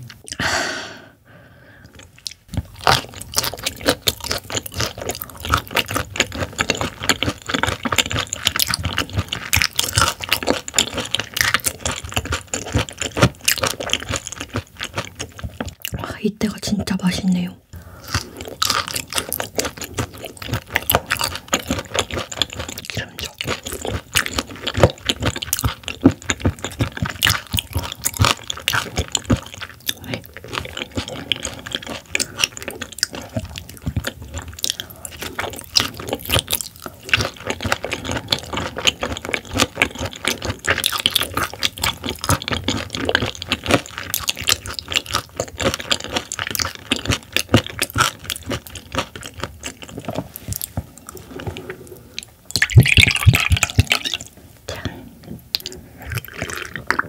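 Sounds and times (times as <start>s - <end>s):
wet chewing sounds: 1.8s - 16.0s, 17.7s - 57.0s.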